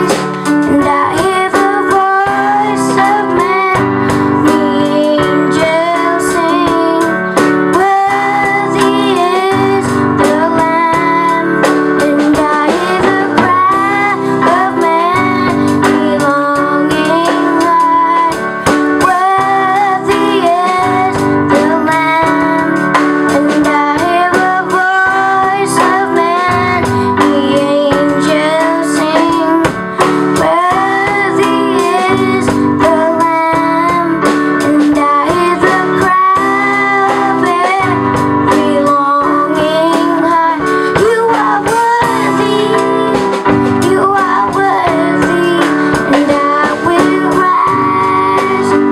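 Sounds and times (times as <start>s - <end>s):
guitar accompaniment: 0.0s - 48.9s
woman singing: 0.0s - 48.9s.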